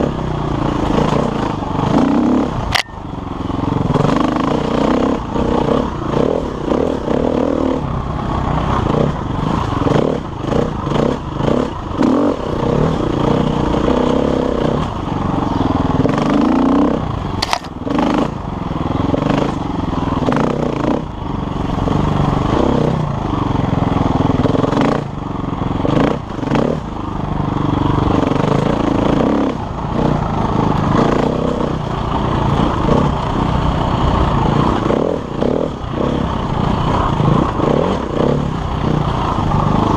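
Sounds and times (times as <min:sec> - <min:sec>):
motorcycle engine revving: 0:00.0 - 0:39.9
motorcycle clatter: 0:00.6 - 0:04.3, 0:17.2 - 0:18.4
sharp click: 0:02.7 - 0:03.0, 0:17.4 - 0:17.8.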